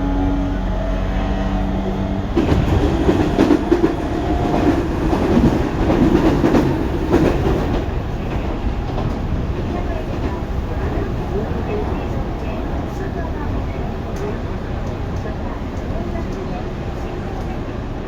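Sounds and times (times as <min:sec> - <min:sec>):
train wheels clacking over rail joints: 0:02.3 - 0:11.1.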